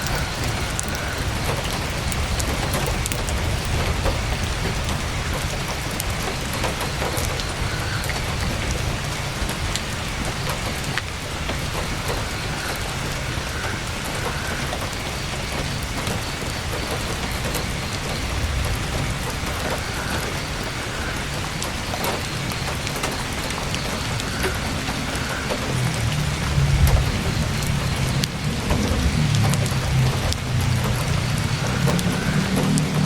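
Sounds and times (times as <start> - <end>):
rain pattering on tent canvas: 0.0 - 33.0
low rumble: 24.0 - 33.0.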